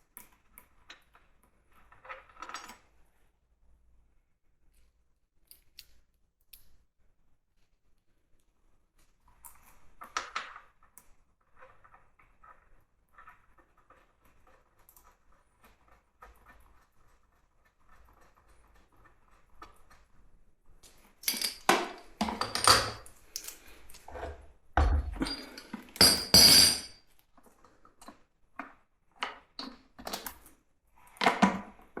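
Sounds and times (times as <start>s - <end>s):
tools knocking and clattering: 21.2s - 23.1s, 24.1s - 26.9s.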